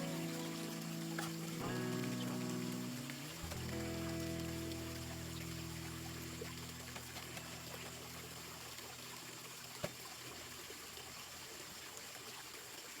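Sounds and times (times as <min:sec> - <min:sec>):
background music: 0:00.0 - 0:08.0
water trickling in a pond: 0:00.0 - 0:13.0.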